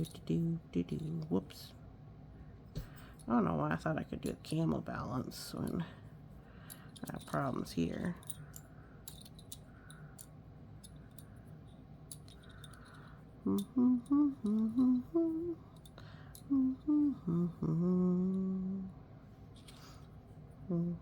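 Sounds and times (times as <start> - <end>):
woman humming a tune: 13.4 - 19.0, 20.6 - 21.0.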